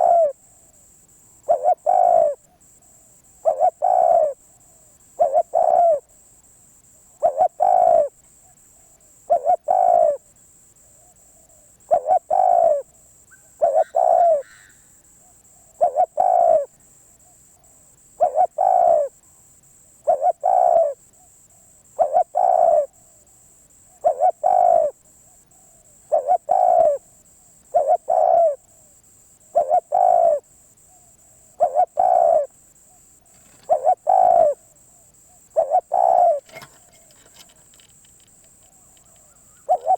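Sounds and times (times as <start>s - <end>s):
dove cooing: 0.0s - 0.4s, 1.4s - 2.4s, 3.4s - 4.4s, 5.2s - 6.1s, 7.2s - 8.1s, 9.3s - 10.2s, 11.5s - 14.8s, 15.8s - 16.7s, 18.2s - 19.1s, 20.0s - 21.0s, 22.0s - 23.0s, 24.0s - 25.0s, 26.1s - 27.0s, 27.7s - 28.6s, 29.6s - 30.4s, 31.6s - 32.5s, 33.3s - 34.7s, 35.5s - 39.9s.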